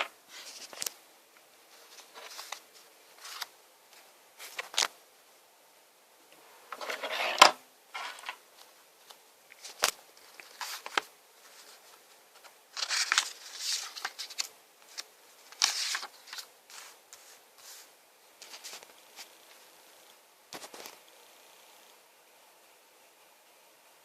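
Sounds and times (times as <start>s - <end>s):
packaging rustling and scraping: 6.7s - 8.4s, 9.6s - 19.4s.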